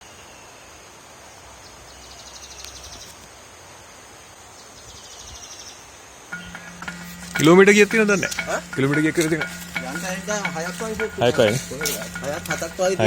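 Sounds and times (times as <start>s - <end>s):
high insect drone: 6.3s - 13.0s
rapid pulsed high trilling: 6.3s - 13.0s.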